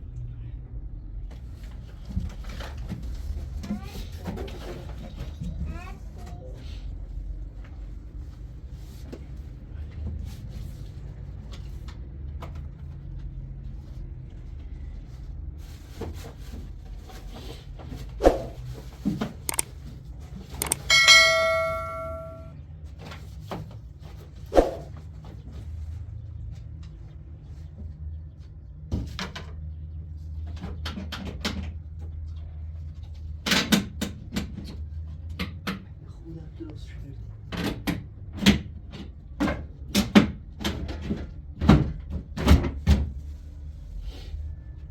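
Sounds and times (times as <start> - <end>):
struck metal ringing: 20.6 - 22.5.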